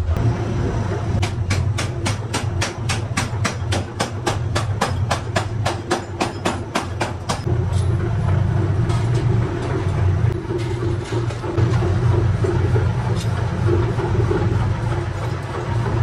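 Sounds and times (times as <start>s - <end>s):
low machine hum: 0.0s - 16.0s
power hammer striking metal: 1.2s - 8.0s.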